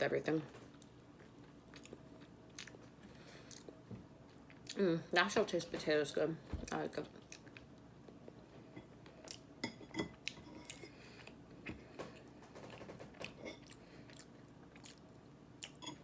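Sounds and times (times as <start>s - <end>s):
person chewing salad: 0.7s - 4.8s, 7.2s - 12.3s, 13.3s - 16.0s.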